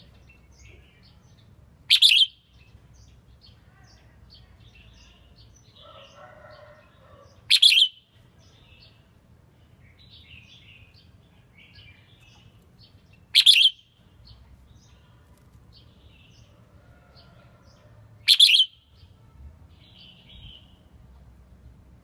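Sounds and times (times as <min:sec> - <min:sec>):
bird singing loud phrases: 0:00.0 - 0:16.6, 0:17.6 - 0:20.9
bird chattering chirps: 0:01.9 - 0:02.4, 0:13.1 - 0:13.8, 0:18.3 - 0:18.8.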